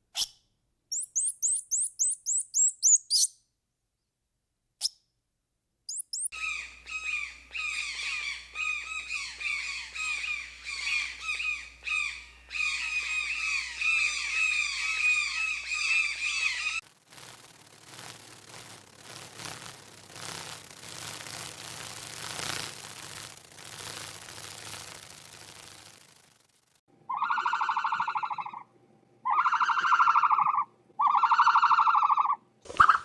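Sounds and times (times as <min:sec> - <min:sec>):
high-pitched squeaky animal calls: 0:00.9 - 0:03.3, 0:05.9 - 0:16.8, 0:27.1 - 0:28.6, 0:29.3 - 0:32.4
steady rushing noise: 0:11.6 - 0:26.7.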